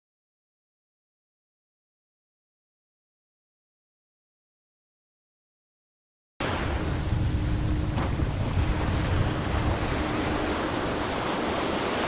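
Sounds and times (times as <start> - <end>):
heavy low rumble: 6.4 - 11.4
sea waves: 6.4 - 12.0
wind buffeting microphone: 6.4 - 12.0.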